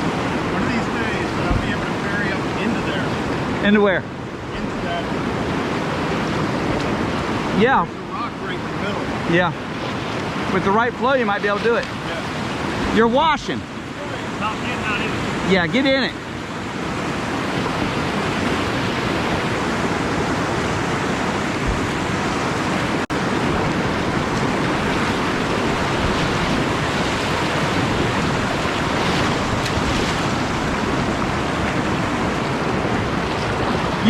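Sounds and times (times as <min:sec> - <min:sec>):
whitewater rushing: 0:00.0 - 0:34.0.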